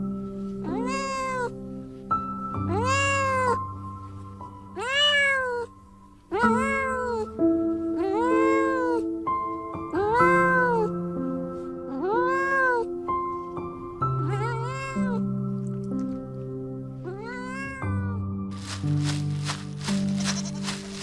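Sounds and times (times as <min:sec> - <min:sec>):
soft background music: 0:00.0 - 0:21.0
cat meowing: 0:00.6 - 0:01.6, 0:02.7 - 0:03.6, 0:04.7 - 0:05.7, 0:06.3 - 0:07.4, 0:08.0 - 0:09.1, 0:09.9 - 0:11.0, 0:11.9 - 0:13.0, 0:14.0 - 0:15.3, 0:17.0 - 0:18.2.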